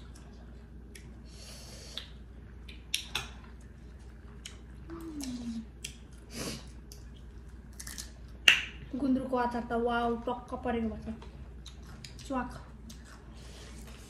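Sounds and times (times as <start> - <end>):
chewing and lip-smacking: 0.0 - 1.2, 1.9 - 8.1, 11.6 - 14.0
person humming mm: 4.9 - 5.7.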